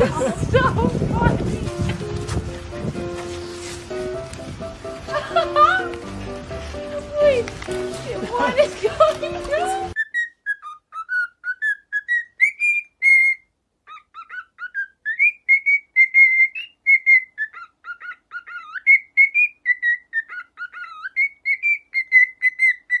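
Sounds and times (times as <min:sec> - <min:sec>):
parrot whistling a tune: 0:10.0 - 0:23.0.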